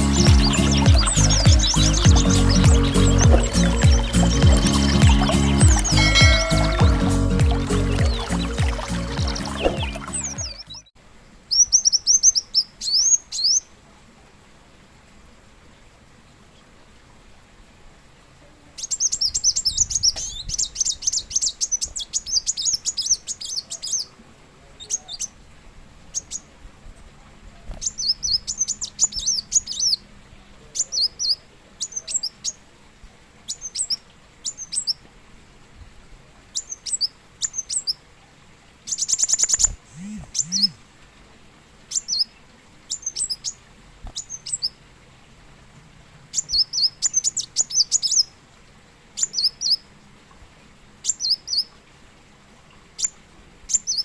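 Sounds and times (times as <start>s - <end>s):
sunbird chirps and trills: 0.0s - 10.9s, 11.5s - 13.7s, 18.8s - 24.1s, 27.8s - 30.0s, 30.8s - 32.6s, 33.5s - 35.0s, 36.5s - 38.0s, 38.8s - 40.8s, 41.9s - 44.8s, 46.3s - 48.3s, 49.2s - 49.8s, 51.0s - 51.7s, 53.0s - 54.0s.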